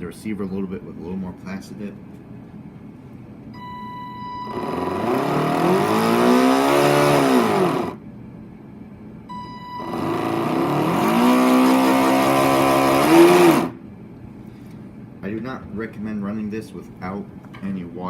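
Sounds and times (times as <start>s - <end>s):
electric motor whirring: 4.5s - 8.0s, 9.8s - 13.8s.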